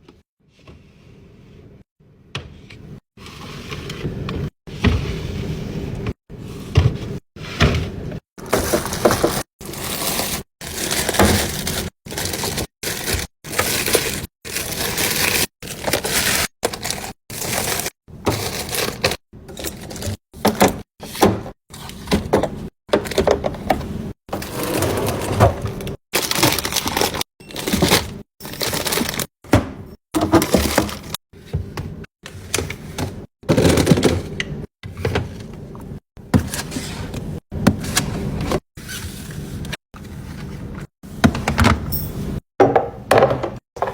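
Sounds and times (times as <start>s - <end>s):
containers and packaging handled: 8.4s - 29.3s, 30.2s - 42.1s.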